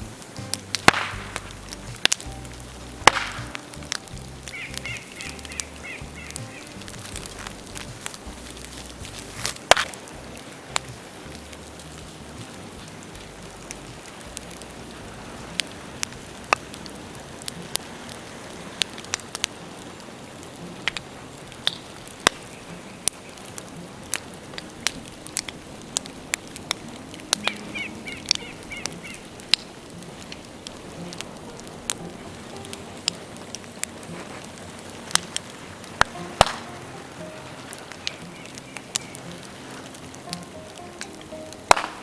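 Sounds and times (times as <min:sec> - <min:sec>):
bonfire crackling and popping: 0:00.0 - 0:42.0
fire hiss: 0:00.0 - 0:42.0.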